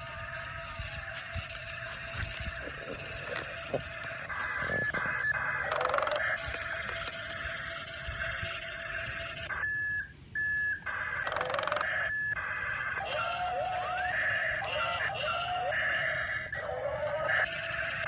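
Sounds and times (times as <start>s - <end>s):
electronic buzz: 0.0s - 9.8s, 10.7s - 14.0s
rising and falling electronic chirps: 0.0s - 16.1s
short electronic beeps: 9.5s - 12.4s.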